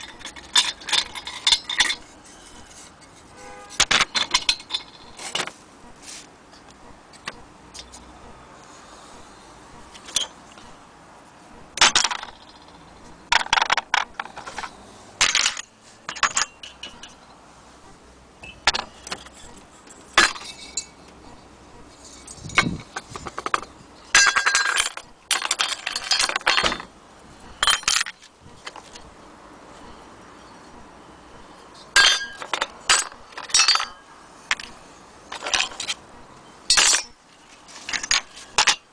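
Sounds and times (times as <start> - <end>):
metal stove parts clinking: 0.0 - 2.5, 20.2 - 21.0, 32.0 - 34.6, 36.7 - 37.2.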